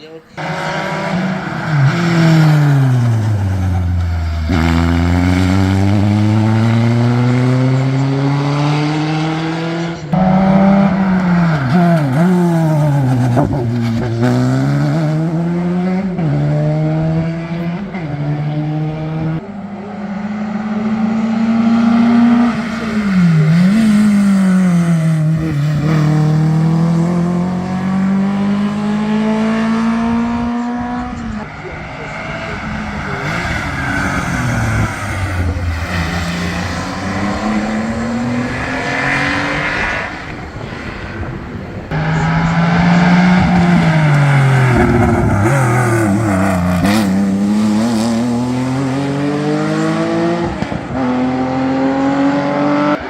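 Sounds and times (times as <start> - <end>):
race car engine at full throttle: 0.0 - 53.0
engine throttle blips: 19.0 - 40.4.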